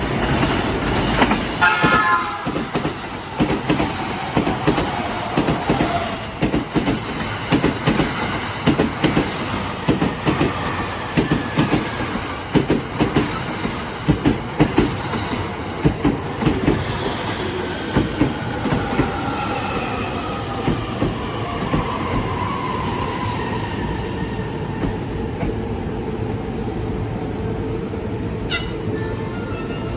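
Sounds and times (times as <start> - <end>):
train wheels clacking over rail joints: 0.2 - 19.1
train horn: 1.6 - 2.9, 28.5 - 29.9.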